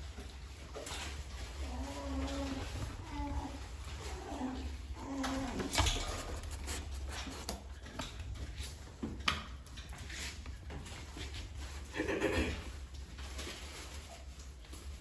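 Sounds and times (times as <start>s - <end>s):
low steady hum: 0.0s - 11.8s
puppies scuffling: 0.0s - 15.0s.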